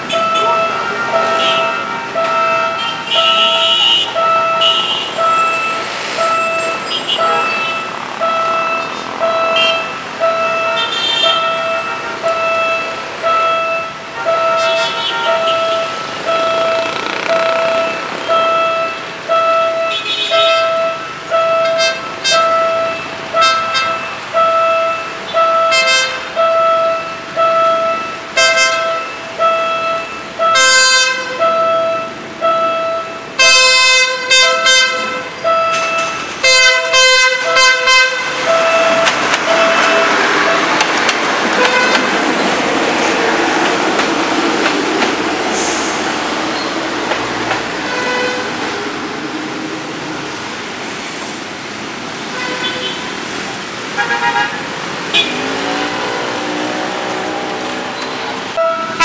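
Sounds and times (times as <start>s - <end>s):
level-crossing alarm beeping: 0.0s - 33.4s, 35.4s - 44.0s
train horn blasts: 28.4s - 29.0s, 30.6s - 31.4s, 33.4s - 35.5s, 36.4s - 40.8s, 41.6s - 42.2s, 47.8s - 48.7s, 54.0s - 57.5s
train rumbling past: 38.3s - 51.8s.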